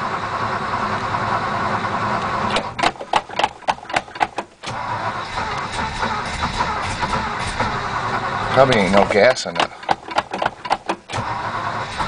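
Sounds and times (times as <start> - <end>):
engine starter cranking: 2.3 - 12.0
engine sharp pops firing: 2.5 - 4.8, 5.5 - 7.8, 8.6 - 11.3.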